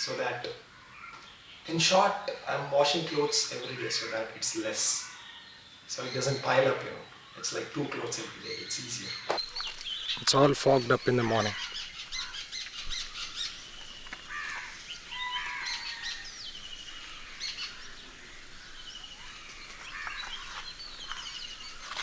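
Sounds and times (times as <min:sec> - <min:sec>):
small birds chirping: 0:08.2 - 0:22.0.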